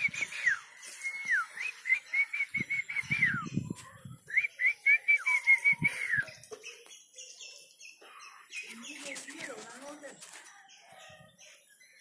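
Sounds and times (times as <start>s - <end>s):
whistled bird song: 0.0s - 9.5s.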